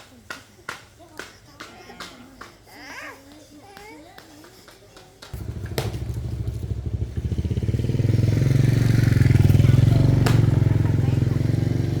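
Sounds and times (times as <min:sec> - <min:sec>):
small engine starting and running: 0:05.4 - 0:12.0.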